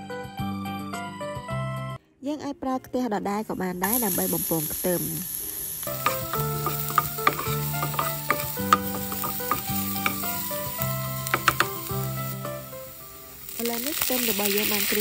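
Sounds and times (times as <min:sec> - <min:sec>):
garlic sizzling in hot oil: 0:03.8 - 0:15.0
spatula stirring: 0:05.8 - 0:12.6, 0:13.6 - 0:15.0
spatula tapping pan: 0:05.9 - 0:12.4.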